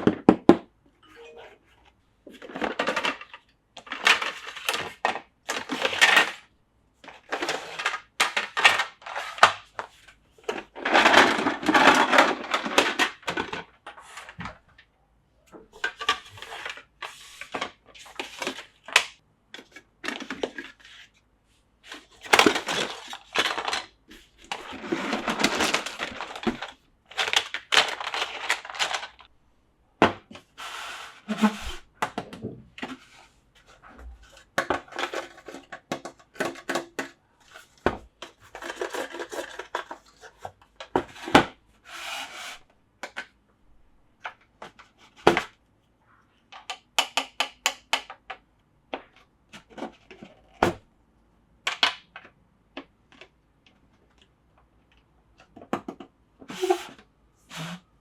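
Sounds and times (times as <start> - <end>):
plastic toy pieces clattering: 2.4 - 6.5, 7.1 - 9.7, 10.4 - 13.9, 21.9 - 29.3, 34.3 - 41.4
plastic clicks and knocks: 51.7 - 56.2.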